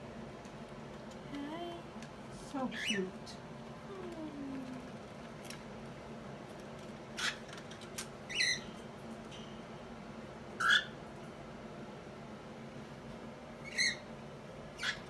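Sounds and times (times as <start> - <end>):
cockatiel chirps: 8.3 - 8.7, 10.6 - 11.0, 13.6 - 14.0, 14.8 - 15.0.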